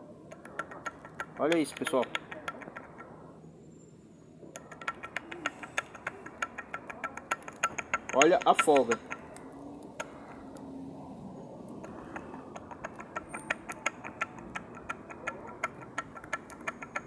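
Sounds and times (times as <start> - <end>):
connecting rod clicking on crankshaft: 4.6 - 9.4.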